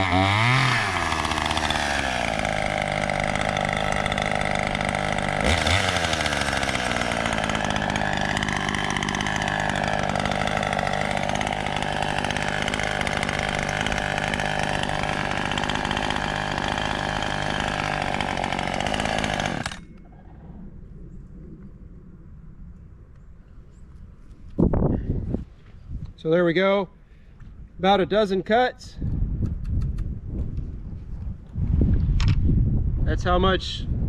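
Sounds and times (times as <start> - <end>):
chainsaw revving and idling: 0.0 - 20.0.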